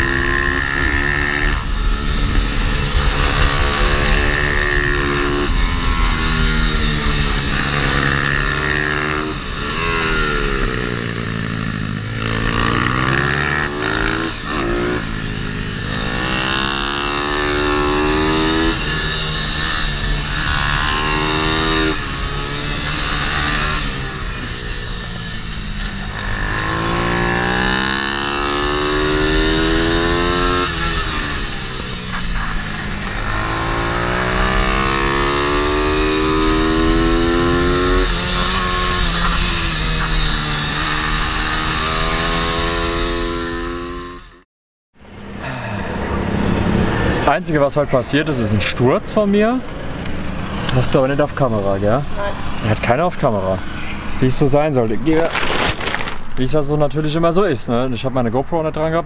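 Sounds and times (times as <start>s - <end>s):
small motorcycle engine revving: 0.0s - 44.4s.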